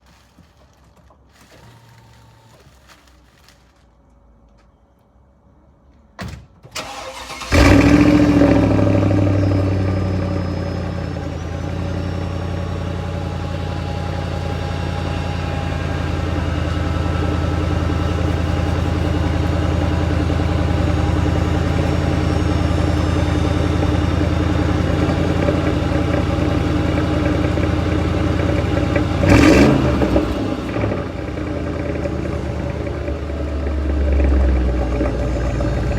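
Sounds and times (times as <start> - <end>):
engine cranking: 6.8 - 9.3, 17.7 - 35.9
car engine revving then idling: 6.9 - 35.9.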